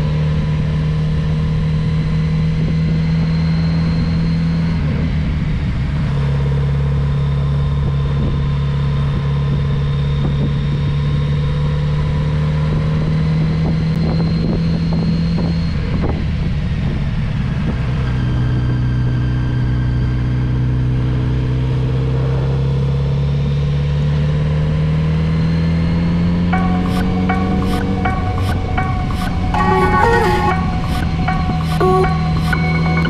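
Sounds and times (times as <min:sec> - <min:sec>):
wind noise on microphone: 0:13.5 - 0:18.9.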